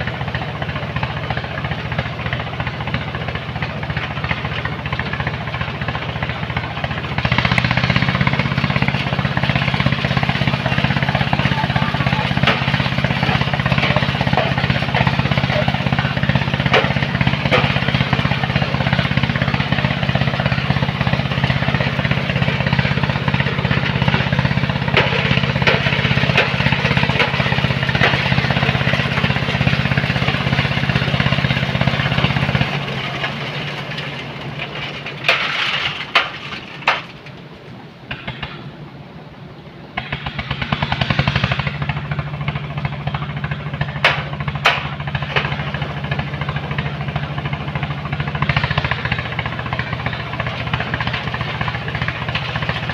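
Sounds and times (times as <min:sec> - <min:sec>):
machine engine rattling: 0:00.0 - 0:52.9
sharp knocks: 0:09.7 - 0:33.9, 0:43.9 - 0:47.2.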